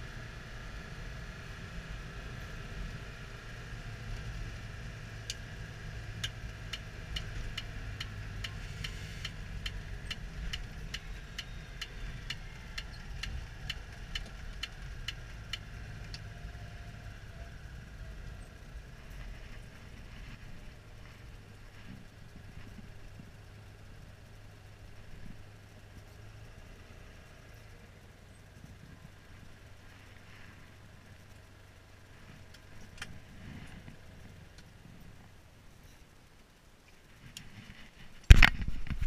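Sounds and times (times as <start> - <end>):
car engine running: 0.0 - 39.0
turn signal ticking: 4.0 - 20.0.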